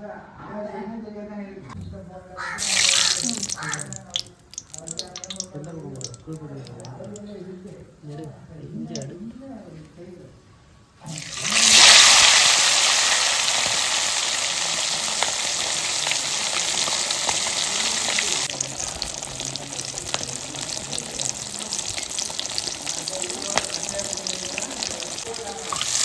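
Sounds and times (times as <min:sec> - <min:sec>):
chicken sizzling in hot oil: 0:02.4 - 0:07.2, 0:11.1 - 0:26.0
deep-frying crackling pops: 0:02.6 - 0:07.3, 0:11.2 - 0:26.0.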